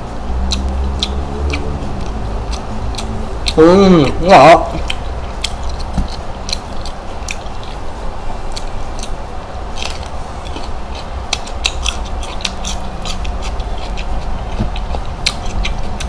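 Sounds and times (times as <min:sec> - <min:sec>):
low background hum: 0:00.0 - 0:16.0
shrimp shells cracking and chewing: 0:04.6 - 0:16.0.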